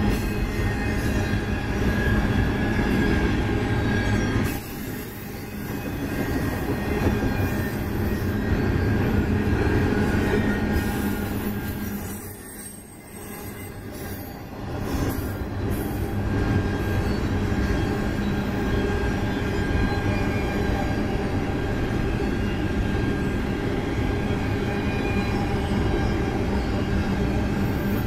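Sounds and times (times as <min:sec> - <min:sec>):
thin squealing tones: 0:00.0 - 0:28.0
train wheels rumbling on rails: 0:00.0 - 0:28.0.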